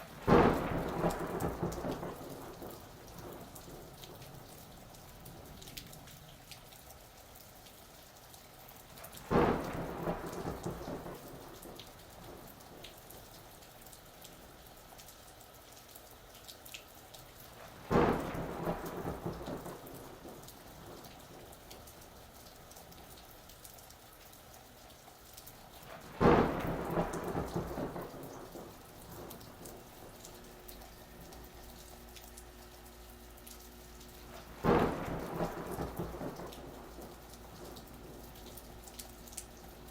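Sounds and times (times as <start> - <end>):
steady rain: 0.0 - 39.9
thunderclaps: 0.2 - 5.9, 9.2 - 13.3, 17.6 - 21.5, 25.9 - 31.6, 34.0 - 39.9.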